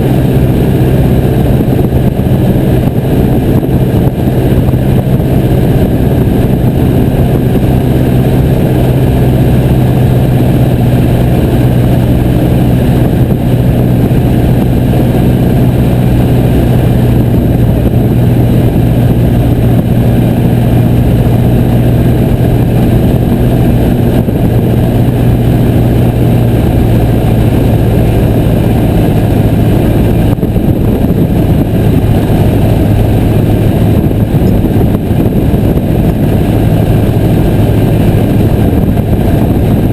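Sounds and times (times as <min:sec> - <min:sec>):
propeller plane engine running: 0:00.0 - 0:39.9.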